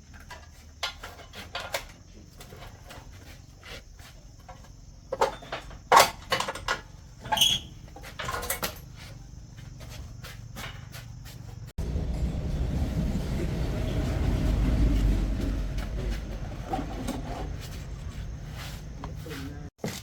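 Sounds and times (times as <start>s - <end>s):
metal tools clinking and knocking: 0.0s - 3.2s, 4.4s - 9.2s.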